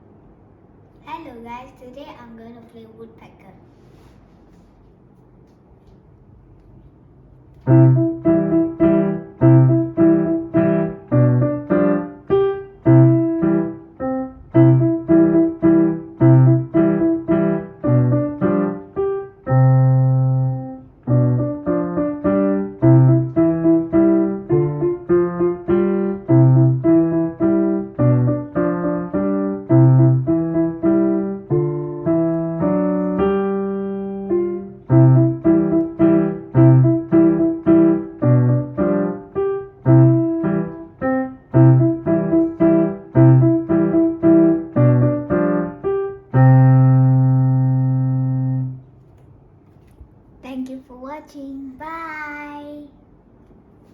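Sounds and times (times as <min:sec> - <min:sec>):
solo piano melody: 0:07.5 - 0:49.1.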